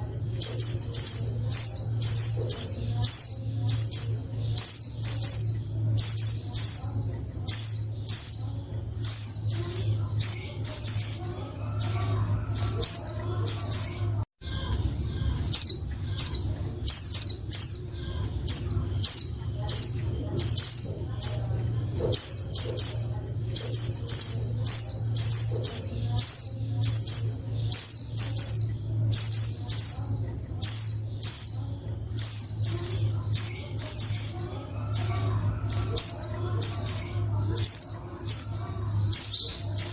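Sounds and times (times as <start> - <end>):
bird chirping high calls: 0.0 - 39.9
steady low hum: 0.0 - 39.9.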